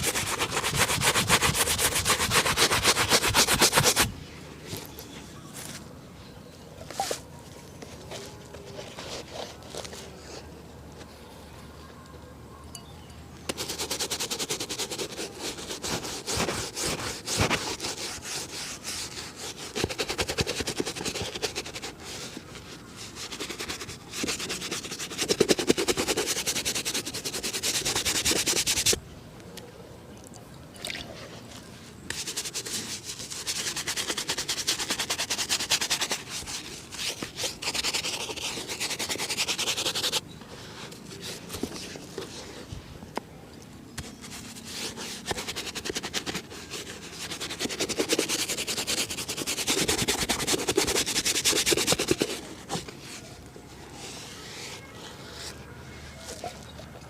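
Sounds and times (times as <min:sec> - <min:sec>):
shoe buffing rubbing on leather: 0:00.0 - 0:04.1, 0:13.5 - 0:29.0, 0:32.1 - 0:40.2, 0:44.0 - 0:53.2.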